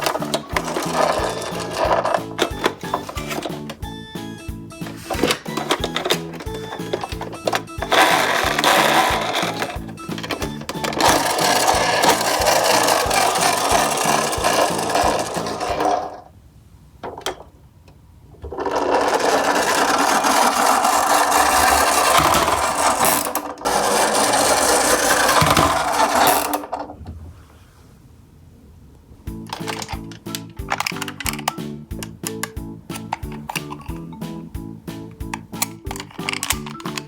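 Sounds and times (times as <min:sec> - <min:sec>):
toy truck mechanism rasping: 0:00.0 - 0:16.3, 0:18.4 - 0:27.0, 0:29.4 - 0:34.1, 0:35.3 - 0:37.0.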